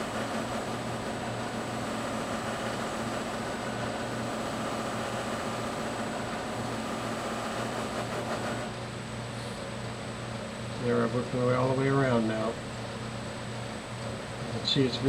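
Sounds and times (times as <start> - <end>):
buffing wheel hiss: 0.0 - 8.7
buffing machine motor hum: 0.0 - 8.8.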